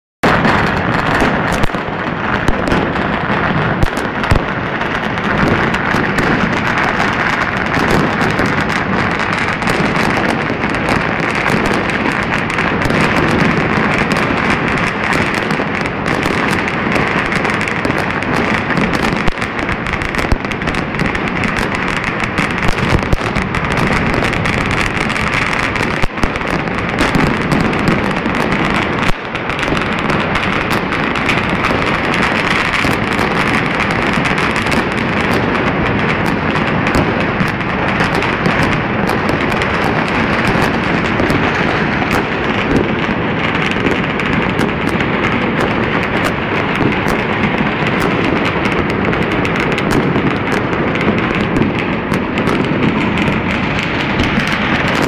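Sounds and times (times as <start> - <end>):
fireworks crackling and banging: 0.2 - 55.0
loud firework bang: 0.2 - 55.0.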